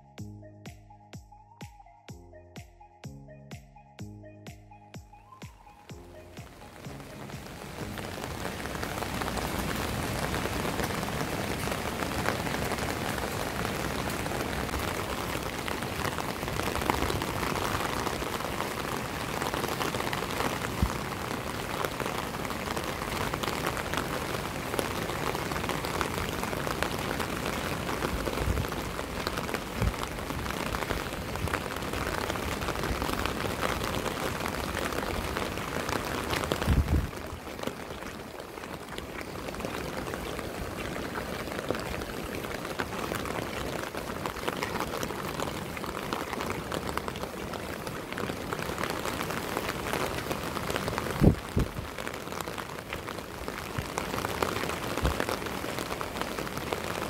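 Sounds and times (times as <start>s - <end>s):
rain on an umbrella: 5.5s - 57.0s.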